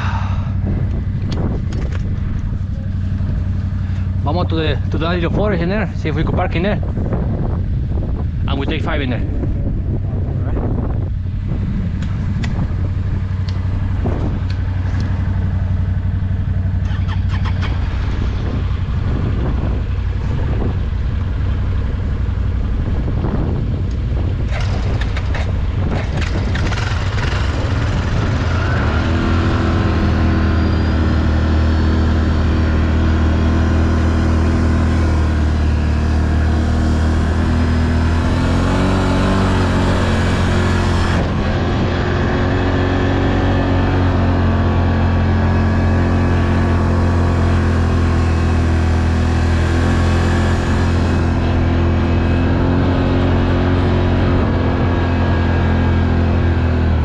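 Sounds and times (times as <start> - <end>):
quad bike engine running: 0.0 - 57.0
knocks and rattles: 24.5 - 27.1.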